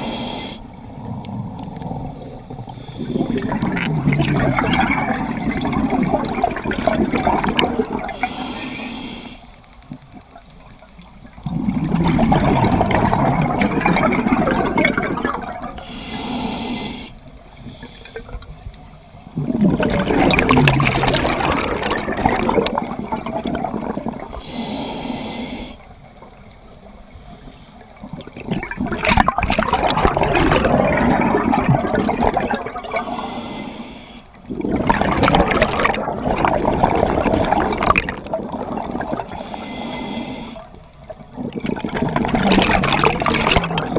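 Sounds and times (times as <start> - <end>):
regulator inhalation hiss: 0.0 - 0.9, 8.2 - 9.9, 15.8 - 19.5, 24.3 - 26.0, 27.1 - 27.9, 32.9 - 34.4, 38.8 - 40.8
gurgling exhaled bubbles: 0.8 - 8.4, 11.3 - 15.9, 19.4 - 24.5, 28.0 - 33.2, 34.4 - 39.6, 40.6 - 43.9.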